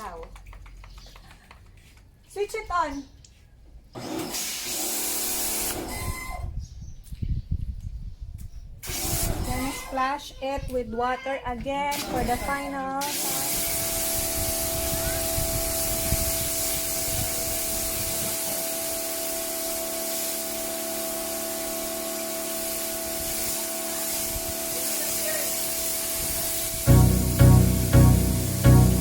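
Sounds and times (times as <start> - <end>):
pressure washer spraying water: 4.2 - 5.8, 13.1 - 29.0
pressure washer hum: 13.1 - 29.0
music with strong beat: 26.9 - 29.0.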